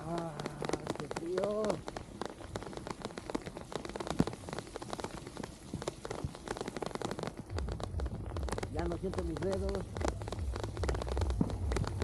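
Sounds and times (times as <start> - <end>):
rain drops ticking: 0.0 - 12.0
low rumble: 7.5 - 12.0.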